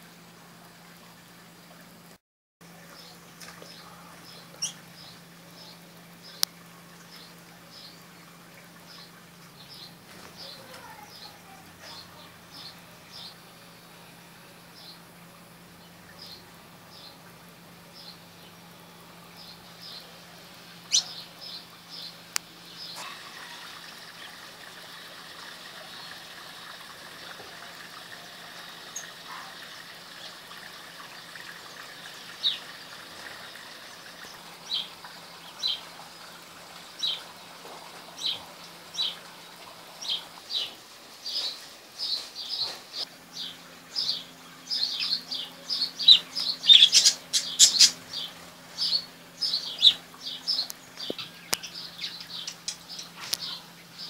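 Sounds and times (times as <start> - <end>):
small birds chirping: 2.9 - 14.1, 17.9 - 23.1, 40.0 - 54.0.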